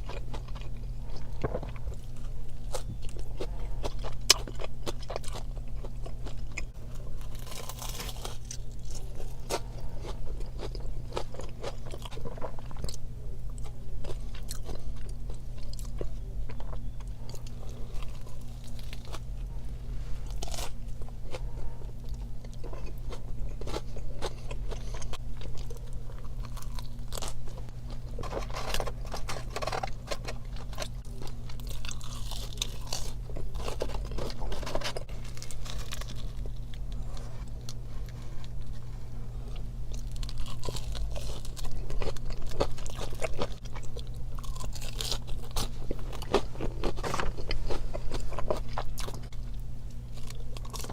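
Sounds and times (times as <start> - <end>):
crunchy bites and chewing: 0.0 - 50.9
steady low hum: 0.0 - 50.9.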